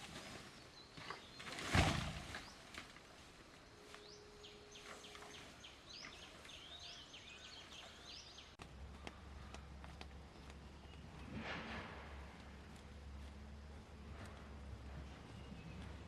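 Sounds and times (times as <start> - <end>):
faint bird chirping: 0.1 - 11.3.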